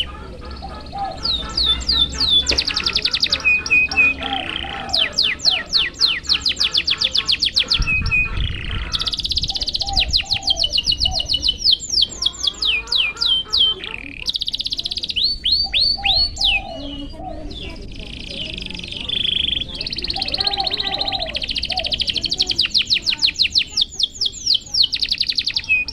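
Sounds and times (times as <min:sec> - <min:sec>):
canary singing trills: 0:00.0 - 0:25.9.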